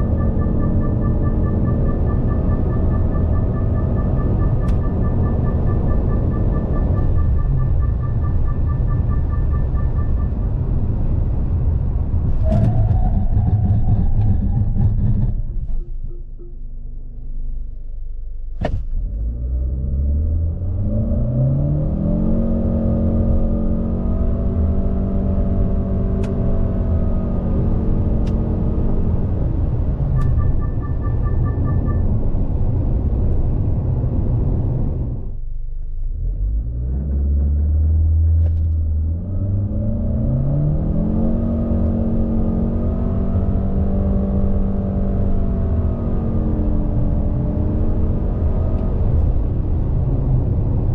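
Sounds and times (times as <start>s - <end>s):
electronic chime beeps: 0.0s - 10.7s, 30.2s - 32.1s
car engine accelerating: 0.0s - 50.9s.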